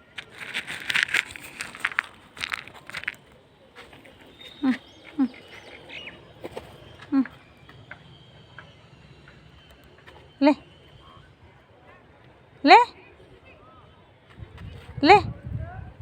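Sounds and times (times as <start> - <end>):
mynah bird chatter and whistles: 0.2 - 11.6.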